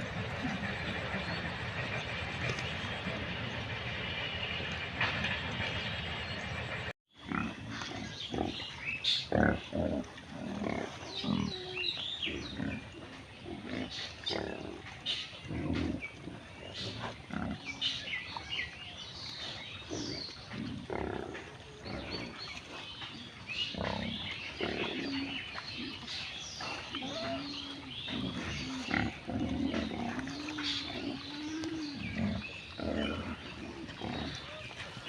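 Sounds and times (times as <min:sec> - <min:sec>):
pigs grunting: 0:00.0 - 0:03.6, 0:07.2 - 0:18.1, 0:19.4 - 0:35.0
pig wavering drawn-out call: 0:26.6 - 0:35.0.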